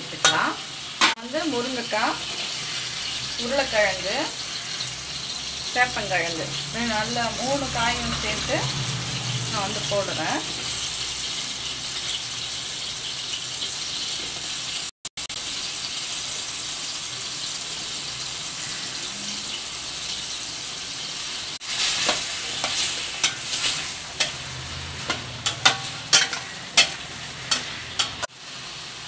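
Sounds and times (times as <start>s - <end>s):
food sizzling in a pan: 0.0s - 29.0s
spatula scraping a pan: 21.6s - 28.3s.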